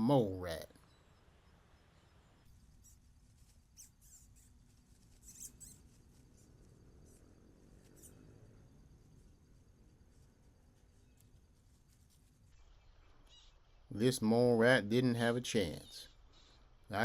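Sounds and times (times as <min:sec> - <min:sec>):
faint high-pitched squeaks: 0:00.0 - 0:08.5.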